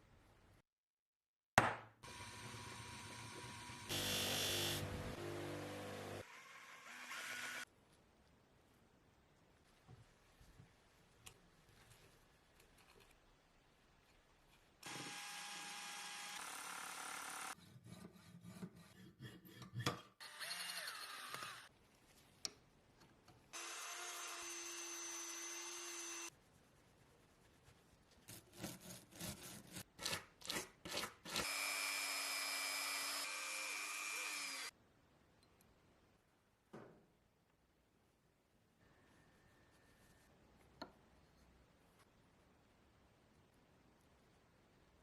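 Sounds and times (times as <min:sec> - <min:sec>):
small power tool whining: 0:02.1 - 0:07.6, 0:14.8 - 0:17.6, 0:23.6 - 0:26.3, 0:31.4 - 0:34.7.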